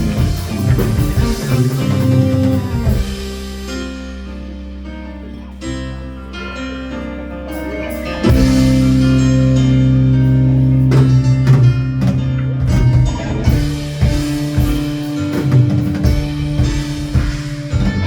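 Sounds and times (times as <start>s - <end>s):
drum beat: 0.0s - 3.5s, 11.0s - 18.0s
keyboard chords: 0.0s - 18.0s
rock band playing: 0.0s - 18.0s.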